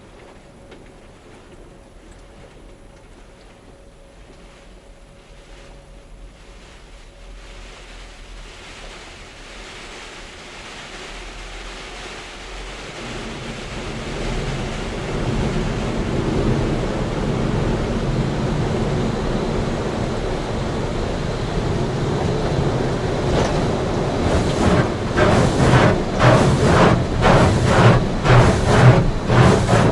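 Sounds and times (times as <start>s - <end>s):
low hum: 0.0s - 29.9s
water spraying on truck: 6.8s - 29.9s.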